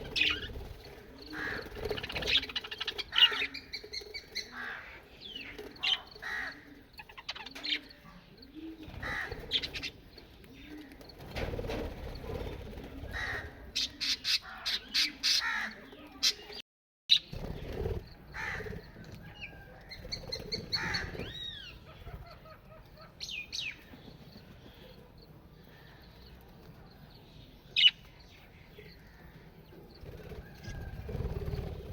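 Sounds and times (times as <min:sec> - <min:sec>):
parrots chirping: 0:00.0 - 0:00.6
parrots squawking: 0:09.0 - 0:09.9.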